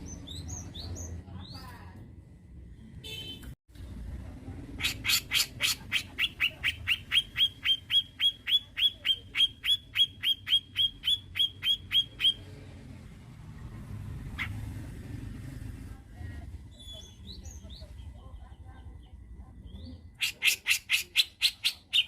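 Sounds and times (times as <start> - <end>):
bird giving sharp downslurred calls: 4.8 - 12.5.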